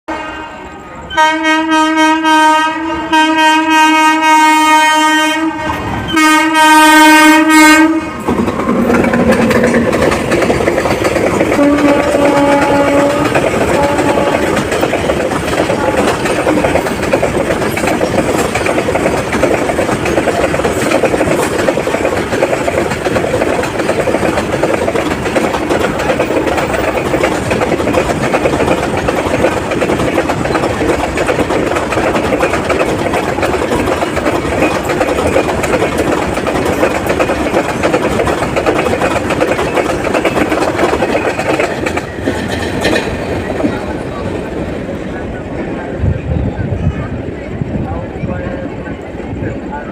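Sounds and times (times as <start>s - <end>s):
locomotive horn blast: 0.1s - 8.2s, 11.5s - 14.6s
freight wagons rumbling and clacking: 8.2s - 45.0s.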